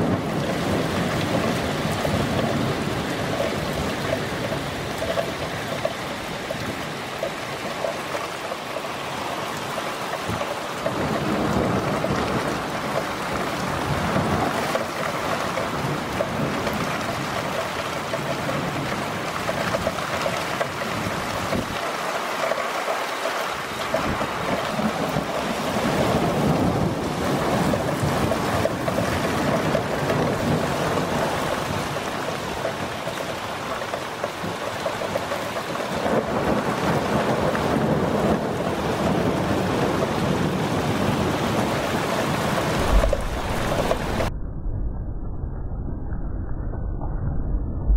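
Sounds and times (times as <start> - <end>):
heavy rain: 0.0 - 44.3
wind: 0.0 - 47.9
low thump: 42.8 - 44.3.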